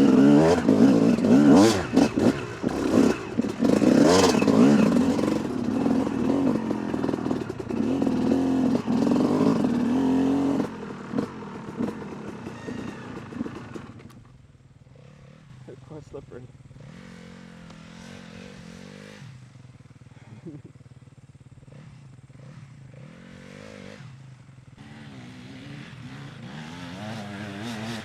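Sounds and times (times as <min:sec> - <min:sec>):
dirt bike engine revving: 0:00.0 - 0:14.2, 0:14.8 - 0:28.0.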